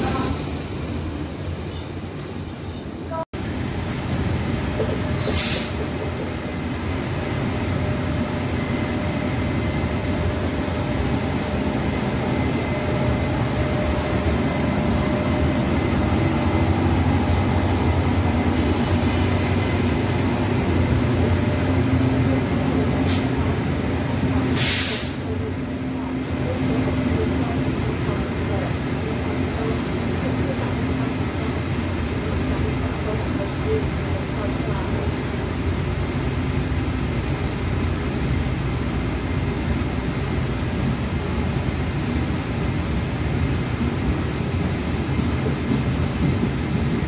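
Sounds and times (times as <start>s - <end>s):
train running on rails: 0.0s - 47.0s
short hisses: 5.2s - 5.8s, 24.5s - 25.3s.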